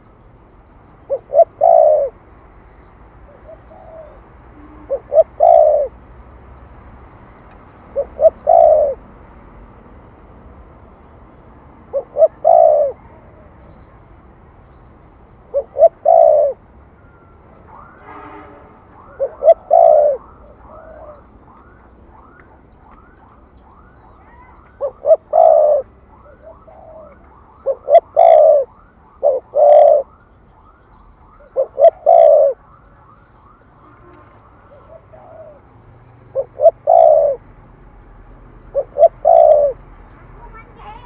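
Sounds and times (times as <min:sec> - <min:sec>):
dove cooing: 0:01.1 - 0:02.2, 0:03.3 - 0:06.1, 0:07.8 - 0:09.1, 0:11.8 - 0:13.8, 0:15.4 - 0:18.0, 0:19.0 - 0:30.2, 0:31.4 - 0:37.5, 0:38.6 - 0:41.0.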